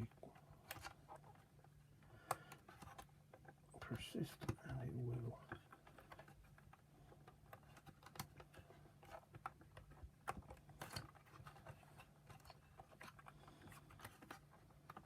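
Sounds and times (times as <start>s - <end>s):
faint low hum: 0.0s - 15.0s
small plastic parts clicking: 4.3s - 15.0s.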